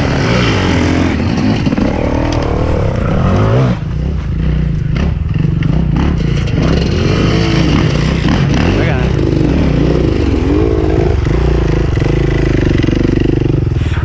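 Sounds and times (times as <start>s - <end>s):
dirt bike engine revving: 0.0s - 13.8s.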